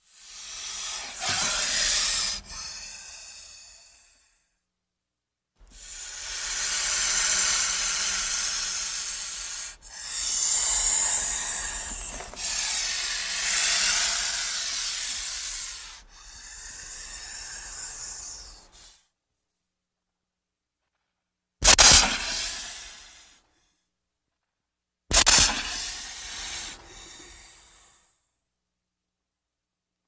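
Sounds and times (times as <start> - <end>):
snake rasping hisses: 0.0 - 4.2, 5.7 - 19.0, 21.6 - 23.4, 25.1 - 28.1.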